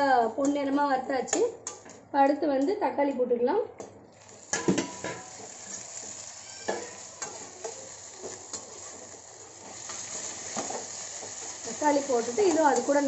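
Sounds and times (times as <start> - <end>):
vegetables sizzling in oil: 4.1 - 13.0
spatula scraping and tapping pan: 4.5 - 13.0.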